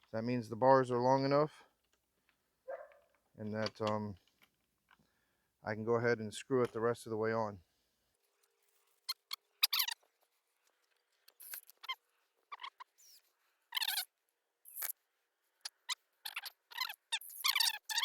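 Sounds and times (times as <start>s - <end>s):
screw squeaking: 9.1s - 10.1s, 11.2s - 14.1s, 14.7s - 15.0s, 15.6s - 18.0s.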